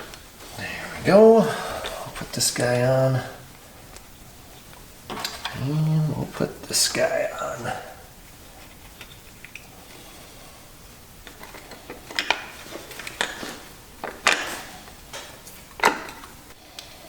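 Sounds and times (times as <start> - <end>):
clicks and knocks of hands working: 8.3 - 9.7, 11.2 - 17.0.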